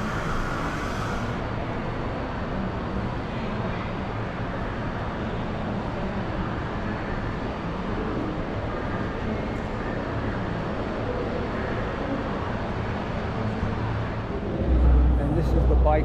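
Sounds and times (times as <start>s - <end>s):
distant crowd noise: 0.0s - 16.0s
low hum: 14.0s - 16.0s.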